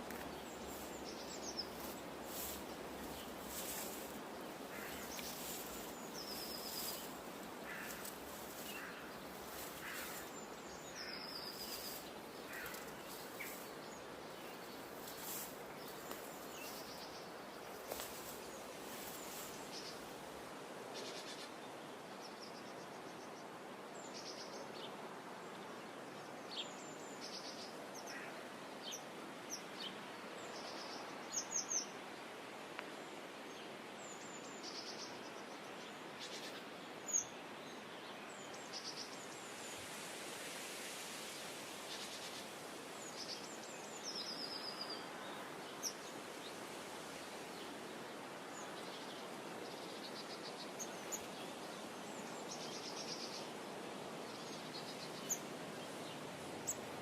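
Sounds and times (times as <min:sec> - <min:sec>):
birds chirping: 0:00.0 - 0:20.0
outdoor background hiss: 0:00.0 - 0:57.0.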